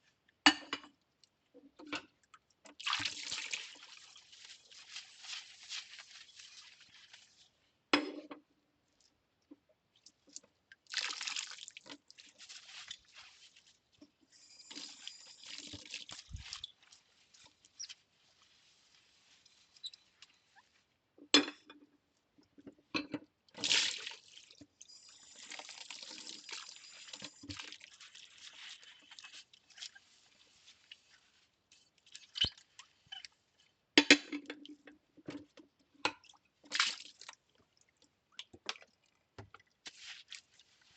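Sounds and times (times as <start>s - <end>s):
running and splashing water: 2.8s - 7.5s, 10.9s - 13.6s, 14.6s - 17.9s, 23.6s - 29.3s
soapy scrubbing: 2.8s - 7.6s, 11.0s - 14.0s, 39.8s - 40.9s.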